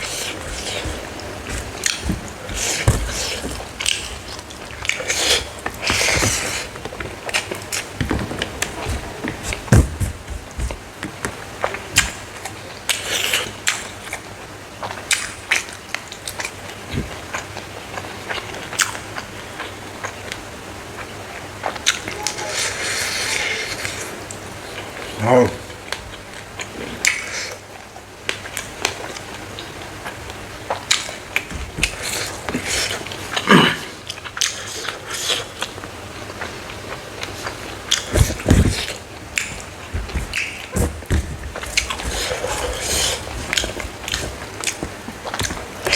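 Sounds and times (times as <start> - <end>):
chewing and crunching: 0.0 - 10.0, 25.8 - 45.9.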